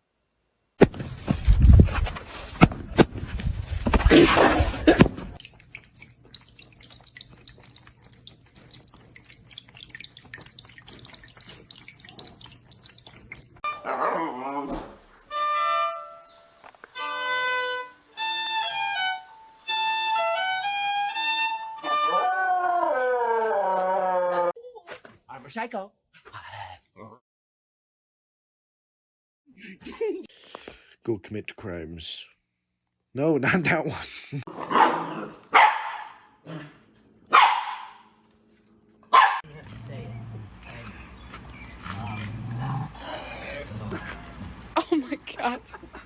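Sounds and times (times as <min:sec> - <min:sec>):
dog howling: 0:13.8 - 0:15.0, 0:21.8 - 0:24.5.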